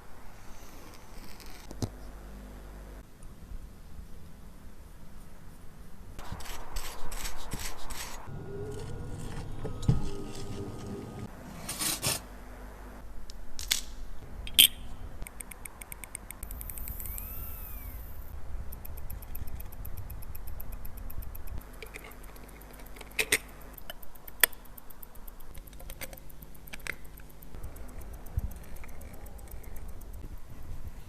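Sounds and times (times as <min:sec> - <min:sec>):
tools scraping: 0:06.2 - 0:12.3
small metal tools clicking: 0:14.5 - 0:18.0, 0:18.7 - 0:31.0.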